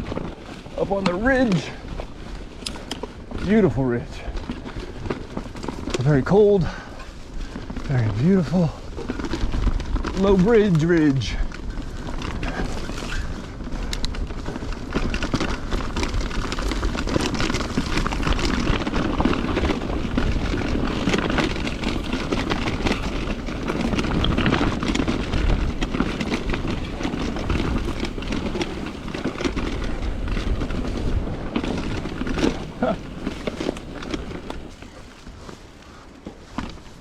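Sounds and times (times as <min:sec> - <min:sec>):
wind buffeting microphone: 0:00.0 - 0:36.0
bike knocks and rattles: 0:00.0 - 0:37.0
bike tyres on dirt: 0:00.0 - 0:37.0.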